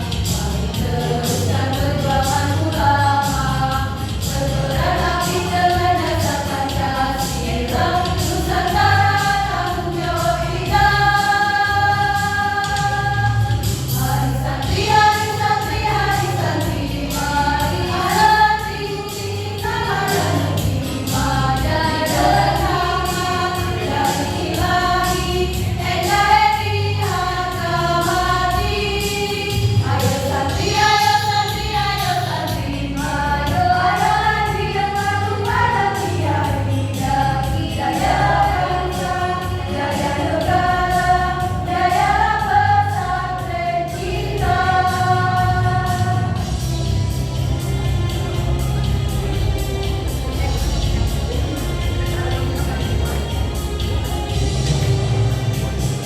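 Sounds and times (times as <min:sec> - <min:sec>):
low instrumental accompaniment: 0:00.0 - 0:56.0
choir singing a march: 0:00.4 - 0:56.0.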